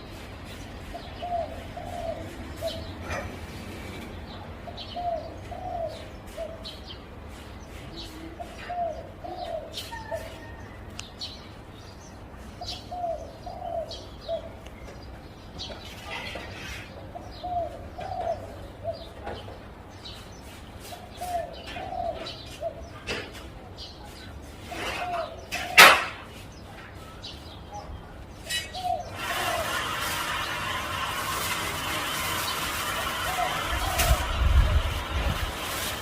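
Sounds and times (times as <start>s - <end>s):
small birds chirping: 0.0s - 30.6s
dove cooing: 1.0s - 6.8s, 8.0s - 10.6s, 12.6s - 14.6s, 17.1s - 19.2s, 21.0s - 23.0s, 32.8s - 35.1s.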